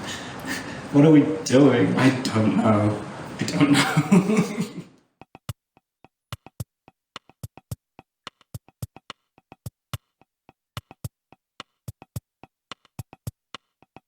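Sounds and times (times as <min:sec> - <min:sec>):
drum machine beat: 0:05.2 - 0:05.6, 0:06.3 - 0:14.0.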